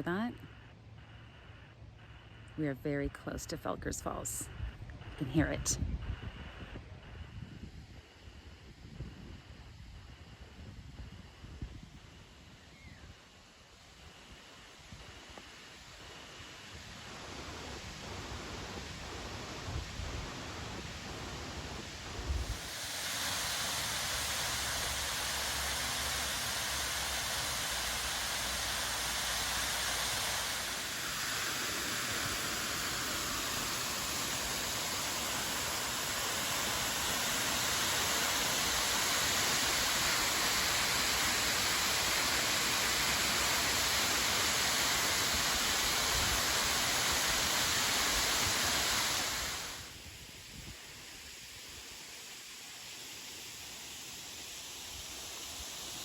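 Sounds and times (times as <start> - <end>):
waterfall rushing: 20.4 - 49.9.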